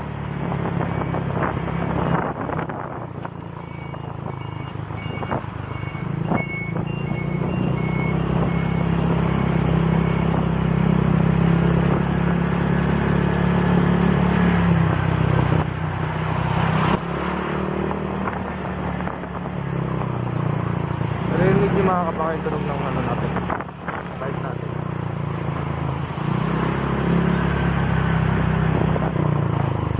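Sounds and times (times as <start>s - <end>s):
short high beeps: 3.6s - 10.3s.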